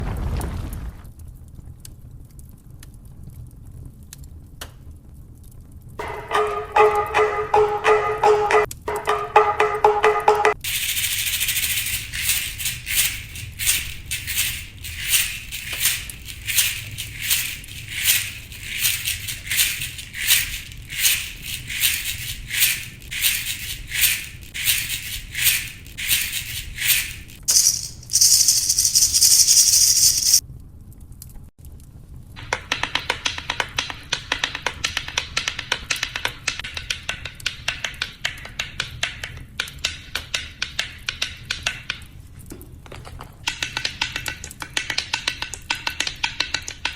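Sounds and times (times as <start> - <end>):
rattle shaker: 6.0 - 9.2, 10.5 - 30.4, 42.5 - 45.2.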